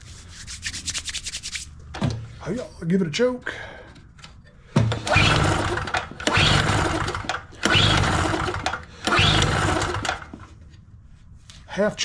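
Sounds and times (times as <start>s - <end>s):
engine turning over: 4.9s - 10.5s
generator recoil starter pulled: 4.9s - 10.5s.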